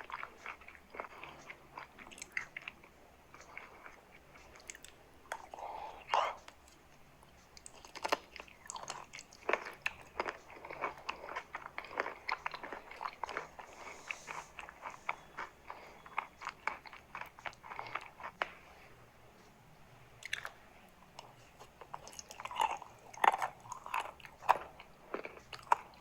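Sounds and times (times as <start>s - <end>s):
chalk being chewed: 0.0s - 6.8s, 7.6s - 18.6s.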